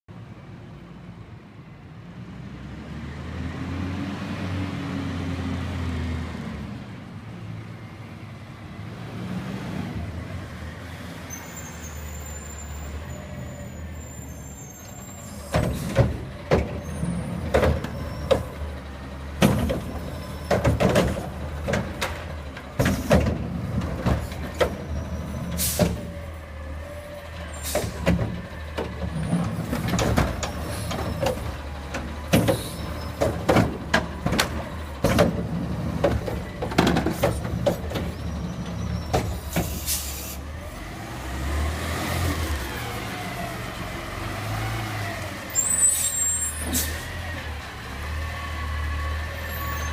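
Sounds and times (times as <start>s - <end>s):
brake squeal: 11.0s - 40.8s, 44.5s - 49.9s
truck diesel engine running: 15.2s - 41.0s.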